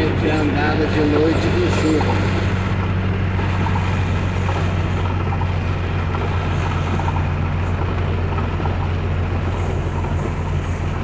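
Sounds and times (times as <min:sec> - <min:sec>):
heavy rain hiss: 0:00.0 - 0:05.0
vehicle engine droning: 0:00.0 - 0:11.0
wet road noise: 0:00.0 - 0:11.0.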